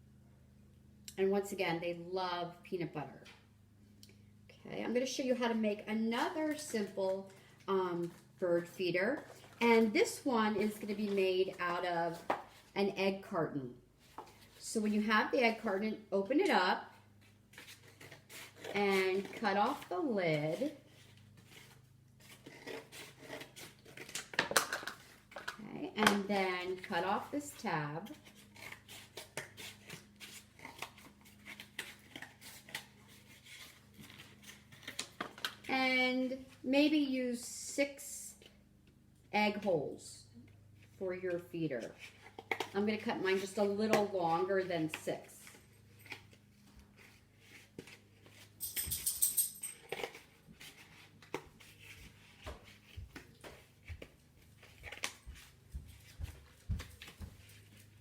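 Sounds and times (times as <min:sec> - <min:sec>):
scissors cutting cardboard: 0:17.2 - 0:24.4, 0:26.4 - 0:35.7, 0:44.8 - 0:48.6.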